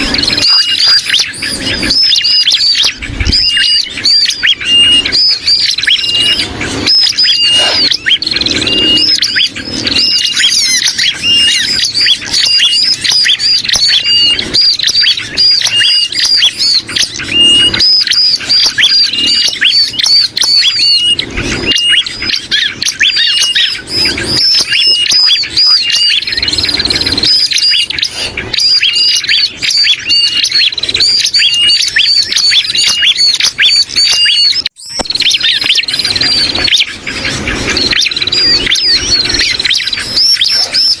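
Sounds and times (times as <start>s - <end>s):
distressed bulbul calls: 0.0s - 41.0s
small birds chirping: 0.0s - 41.0s.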